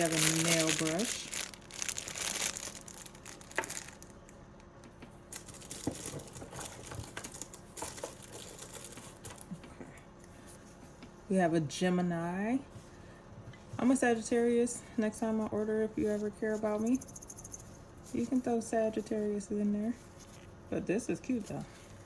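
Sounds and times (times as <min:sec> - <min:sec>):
packaging crinkling: 0:00.0 - 0:04.7, 0:05.3 - 0:09.6.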